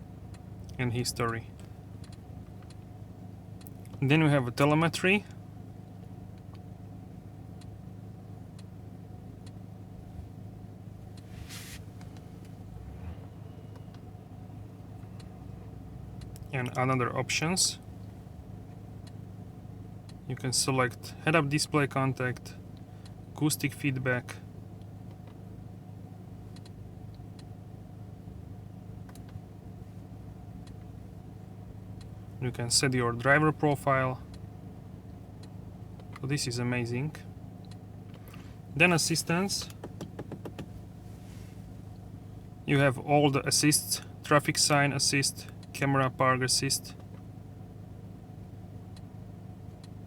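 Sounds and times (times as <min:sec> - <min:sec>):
car engine idling: 0:00.0 - 0:50.0
sharp control clicks: 0:00.3 - 0:02.8, 0:26.5 - 0:27.6, 0:29.0 - 0:29.4, 0:37.6 - 0:40.8
short hiss: 0:11.3 - 0:11.9.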